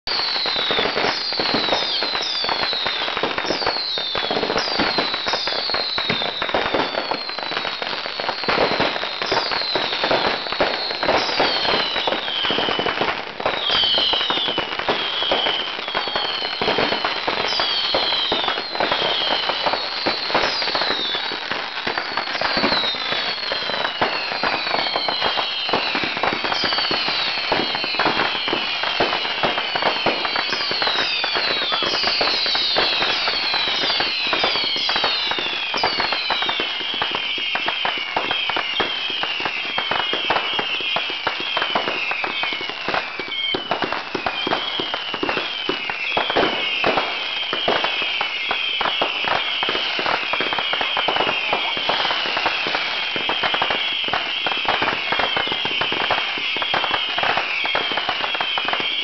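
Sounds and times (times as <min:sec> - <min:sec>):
fireworks crackling and popping: 0:00.0 - 0:59.0
whistles falling in pitch: 0:13.6 - 0:59.0.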